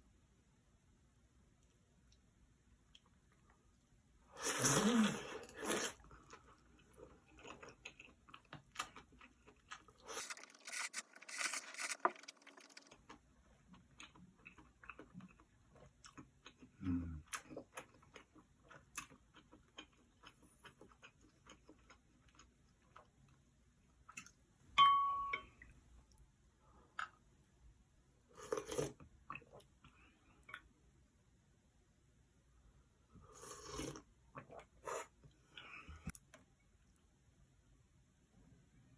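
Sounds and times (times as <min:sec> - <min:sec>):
noodle slurping: 0:04.4 - 0:06.0, 0:10.0 - 0:13.0
chewing and crunching: 0:05.4 - 0:23.4.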